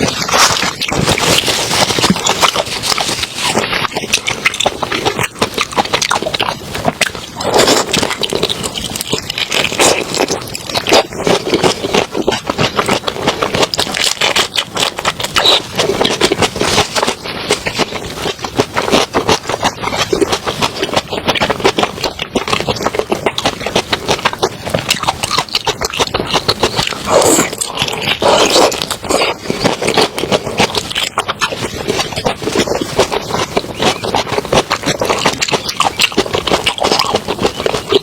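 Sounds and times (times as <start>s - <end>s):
wet chewing and crackling: 0.0s - 38.0s.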